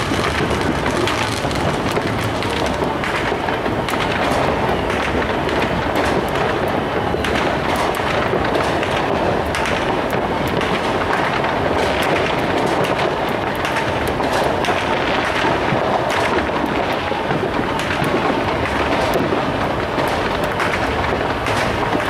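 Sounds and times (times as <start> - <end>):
fireworks popping and crackling: 0.0 - 22.0.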